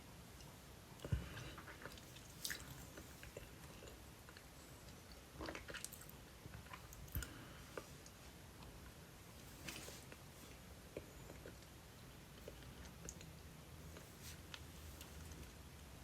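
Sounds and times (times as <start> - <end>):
person chewing pizza: 1.0 - 7.9.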